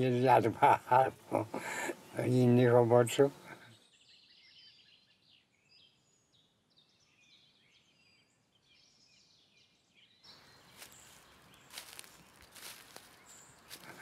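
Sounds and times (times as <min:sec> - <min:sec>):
faint birdsong chirps and trills: 0:00.0 - 0:14.0
outdoor hiss: 0:00.4 - 0:03.5.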